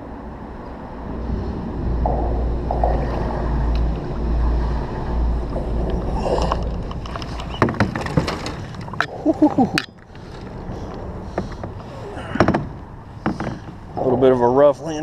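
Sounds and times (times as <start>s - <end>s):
wind rumble on microphone: 0.0s - 15.0s
kayak hull knocking and scraping: 2.0s - 4.6s, 5.4s - 10.6s, 11.3s - 13.9s.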